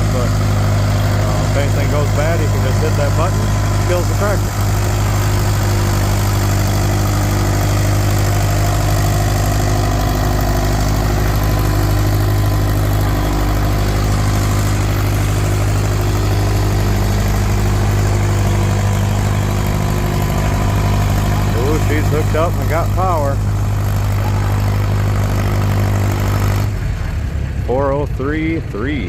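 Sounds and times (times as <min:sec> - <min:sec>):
tractor engine droning: 0:00.0 - 0:29.0.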